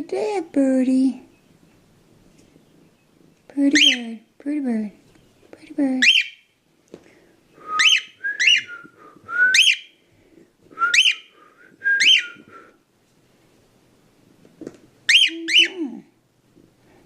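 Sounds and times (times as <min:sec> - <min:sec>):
bird whistling rising notes: 0:07.7 - 0:10.0, 0:10.8 - 0:12.5.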